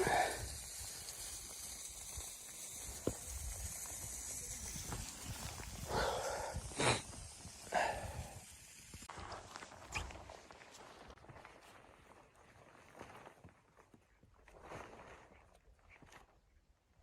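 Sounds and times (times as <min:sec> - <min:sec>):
wind hiss: 0:00.0 - 0:09.1
footsteps crunching in snow: 0:09.1 - 0:15.3.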